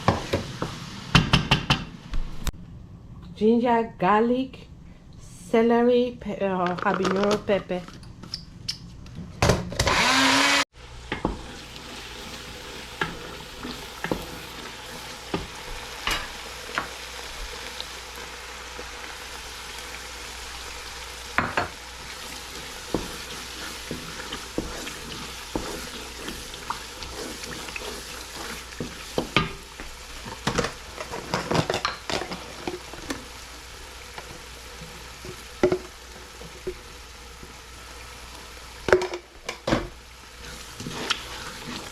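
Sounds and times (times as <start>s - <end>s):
vegetables sizzling in hot oil: 0.0s - 1.4s, 10.0s - 41.9s
spatula scraping a pot: 22.1s - 29.4s, 40.4s - 41.9s.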